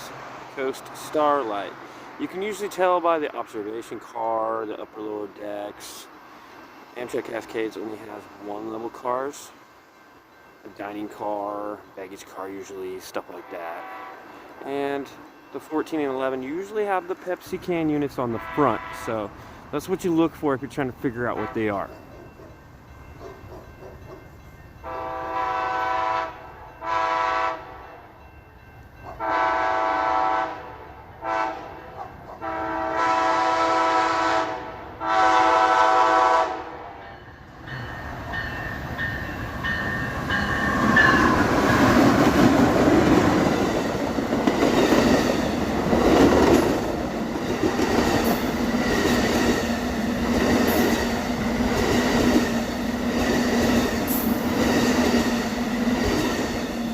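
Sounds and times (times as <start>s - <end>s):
train horn blasts: 13.4s - 14.4s, 18.2s - 19.4s, 21.4s - 21.9s, 24.8s - 28.0s, 29.1s - 37.0s
train wheels rumbling: 37.0s - 56.9s
rail clatter: 37.6s - 56.9s.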